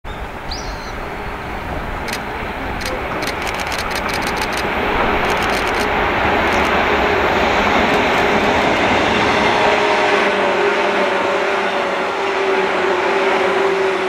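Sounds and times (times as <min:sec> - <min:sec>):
electric train approaching: 0:00.2 - 0:14.0
sharp clicks: 0:02.1 - 0:06.8, 0:07.9 - 0:08.7.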